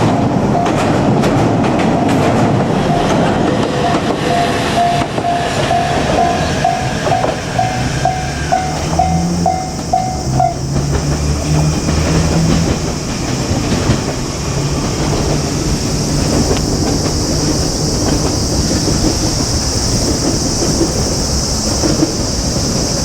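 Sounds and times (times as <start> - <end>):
crossing warning bell ringing: 0.0 - 11.2
electric train rumble: 0.0 - 23.0
wheels clacking over rail joints: 0.0 - 23.0.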